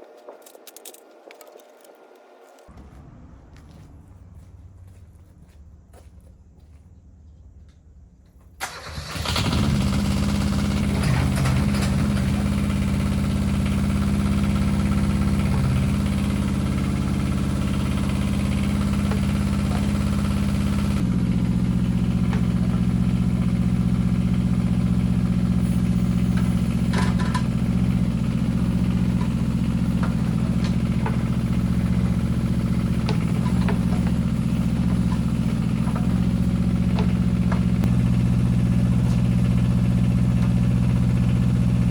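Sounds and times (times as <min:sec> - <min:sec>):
diesel engine starting and running: 0:08.5 - 0:41.9.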